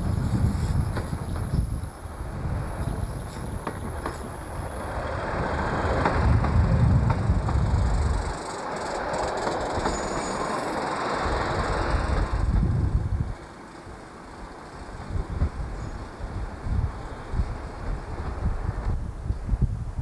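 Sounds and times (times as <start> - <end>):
train rumbling past: 0.0 - 20.0
wheels clacking over rail joints: 2.6 - 19.0.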